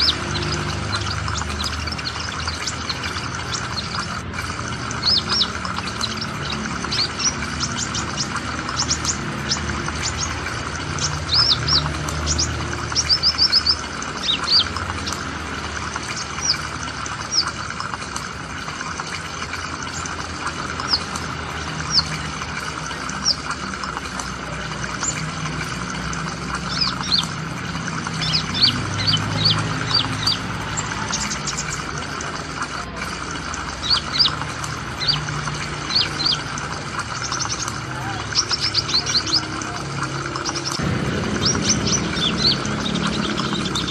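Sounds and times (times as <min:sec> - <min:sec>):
small bird chirping: 0:05.0 - 0:15.2.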